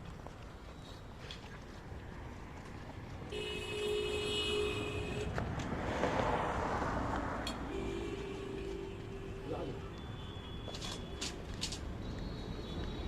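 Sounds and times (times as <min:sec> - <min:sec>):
traffic rumble: 0:00.0 - 0:13.0
vehicle horn blast: 0:03.3 - 0:05.4, 0:07.7 - 0:11.2
vehicle passing: 0:04.7 - 0:09.9.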